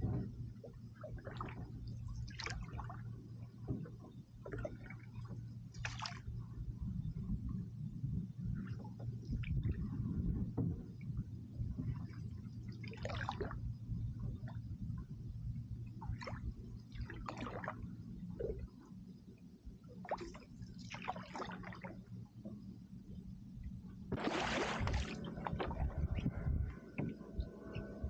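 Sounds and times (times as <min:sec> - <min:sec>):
steady low rumble: 0:00.0 - 0:28.0
canoe paddle splashing in water: 0:24.1 - 0:25.9.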